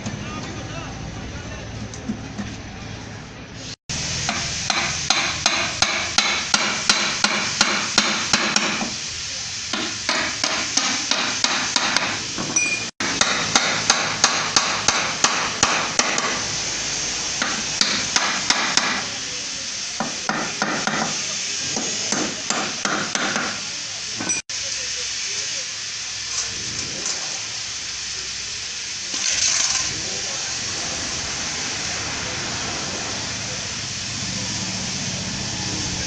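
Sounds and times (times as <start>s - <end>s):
hammer striking metal: 4.3s - 9.0s, 9.7s - 16.4s, 17.4s - 19.1s, 20.0s - 21.2s, 21.8s - 23.6s.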